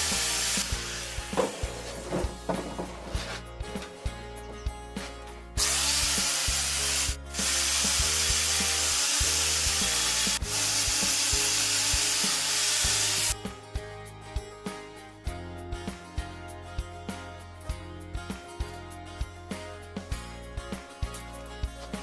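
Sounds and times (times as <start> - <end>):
power tool working wood: 0.0 - 1.6, 5.6 - 13.4
background music with bass line: 0.0 - 22.0.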